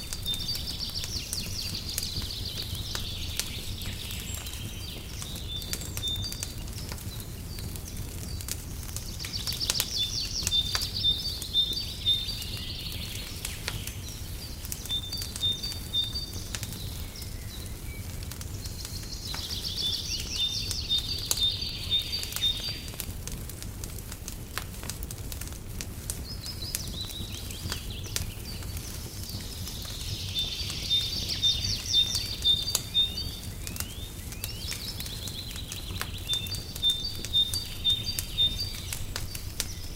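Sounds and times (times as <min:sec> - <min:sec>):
wood fire crackling: 0:00.0 - 0:39.9
songbird trilling: 0:30.2 - 0:34.8, 0:35.8 - 0:39.9.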